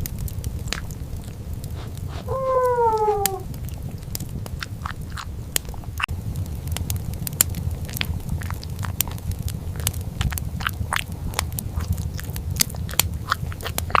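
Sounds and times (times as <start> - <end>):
steady low hum: 0.0 - 14.0
food crunching while chewed: 0.2 - 6.1, 7.4 - 14.0
squeaky mouth sounds: 1.8 - 3.5.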